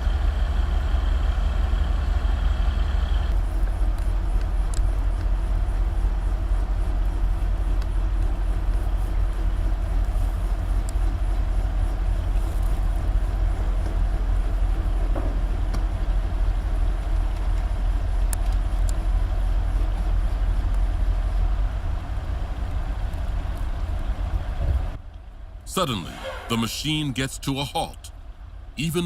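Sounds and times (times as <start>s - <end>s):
heavy diesel engines under load: 0.0s - 29.0s
faint clicks: 3.3s - 21.2s.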